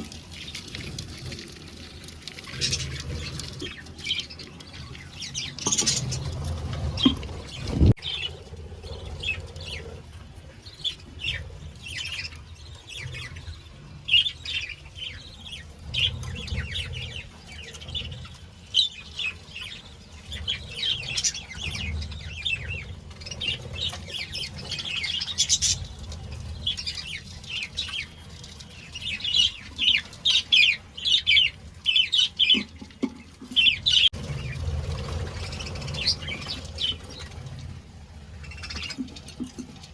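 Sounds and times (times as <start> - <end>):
wing flapping: 0.0 - 10.6, 33.8 - 39.9
low rumbling: 0.0 - 29.7, 33.7 - 39.4
budgerigars chirping and chattering: 0.3 - 39.9.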